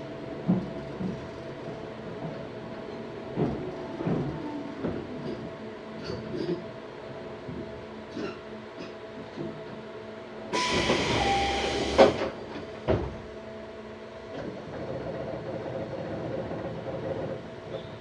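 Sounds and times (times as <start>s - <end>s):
train running noise: 0.0s - 18.0s
train doors thudding: 10.6s - 13.2s.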